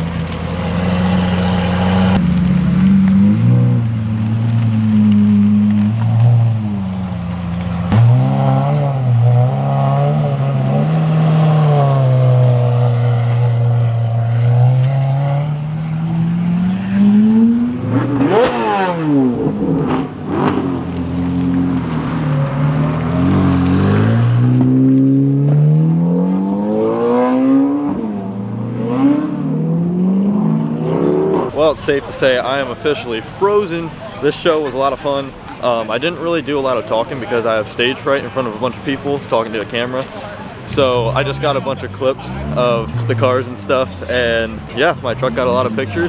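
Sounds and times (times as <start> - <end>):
car speeding past: 0.0 - 4.3, 7.8 - 31.5
sports car engines revving: 0.0 - 35.0, 35.9 - 46.0.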